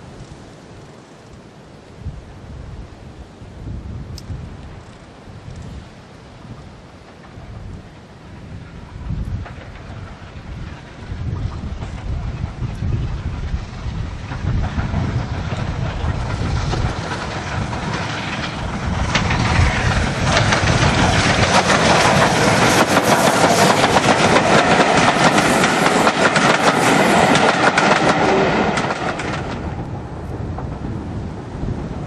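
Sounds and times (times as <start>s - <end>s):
wind on microphone: 0.0s - 32.0s
steam train passing: 3.3s - 32.0s
wheels clattering over rail joints: 6.6s - 31.3s.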